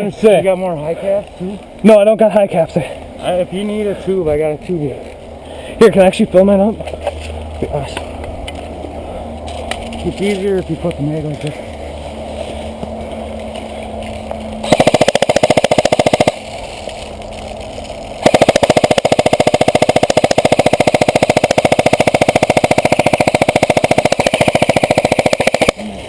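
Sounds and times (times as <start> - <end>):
rapid mechanical clicking: 14.6 - 17.0, 18.2 - 25.9.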